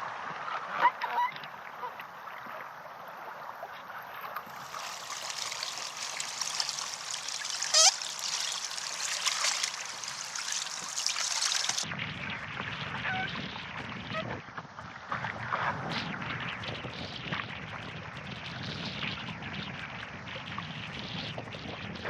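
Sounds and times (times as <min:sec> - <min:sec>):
water splashing and trickling: 0:01.0 - 0:11.9
loud chirp: 0:07.7 - 0:08.6.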